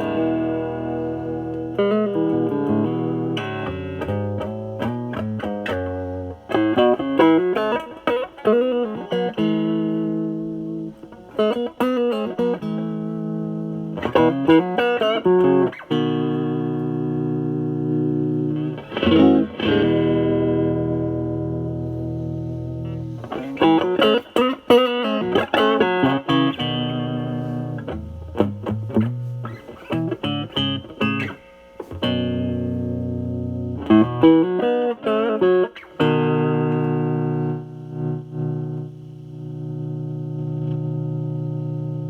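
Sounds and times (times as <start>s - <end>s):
overdriven electric guitar: 0.0s - 42.0s.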